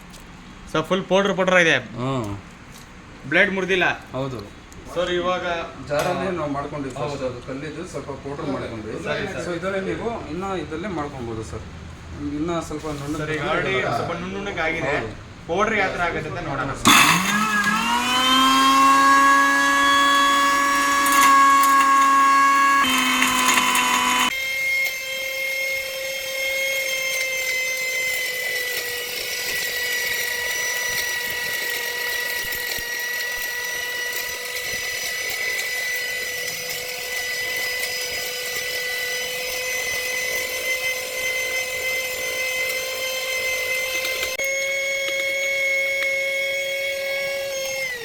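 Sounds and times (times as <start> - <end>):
mixer grinder motor whining: 16.8 - 48.0.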